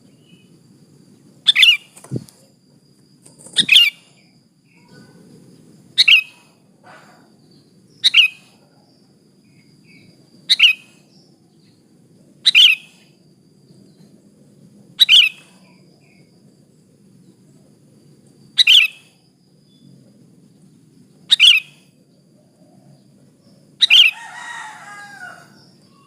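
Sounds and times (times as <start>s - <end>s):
bird chirping calls: 1.4s - 2.3s, 3.2s - 11.8s, 12.4s - 14.1s, 15.0s - 16.3s, 18.6s - 19.9s, 20.6s - 22.0s, 22.8s - 26.0s.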